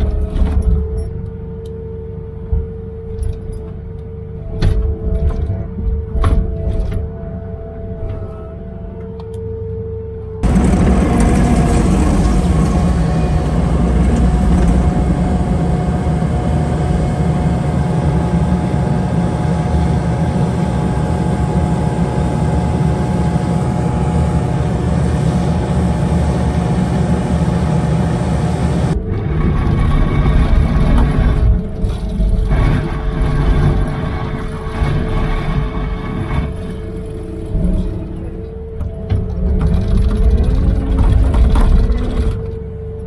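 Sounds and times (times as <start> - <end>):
truck diesel engine running: 10.4 - 42.8.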